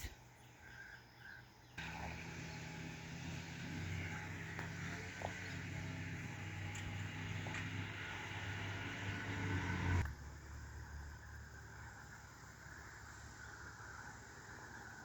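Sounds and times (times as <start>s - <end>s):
bird chirps: 0.0s - 9.7s
insect chirps: 0.0s - 15.0s
car engine and road noise: 1.8s - 15.0s.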